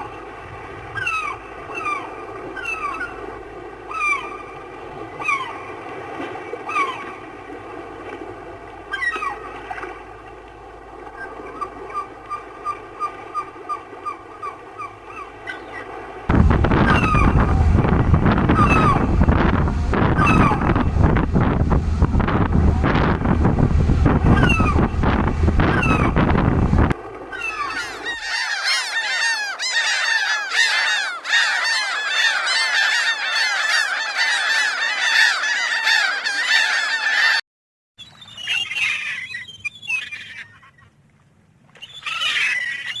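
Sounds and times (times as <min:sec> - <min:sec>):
seagulls calling: 0:00.9 - 0:05.9, 0:06.5 - 0:07.4, 0:08.8 - 0:10.1, 0:11.0 - 0:37.4, 0:38.0 - 0:41.0, 0:41.8 - 0:43.0
wind and surf rushing: 0:14.2 - 0:28.3.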